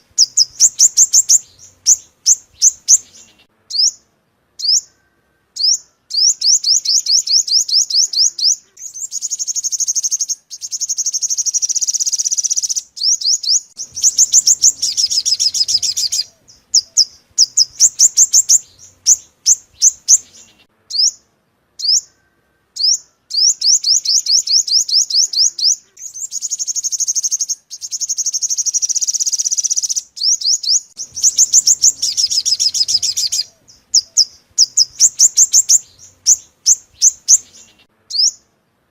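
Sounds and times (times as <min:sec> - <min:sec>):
bird trilling: 0:00.0 - 0:04.0, 0:04.6 - 0:21.2, 0:21.8 - 0:38.5
bird chips: 0:07.0 - 0:21.0, 0:23.7 - 0:38.3.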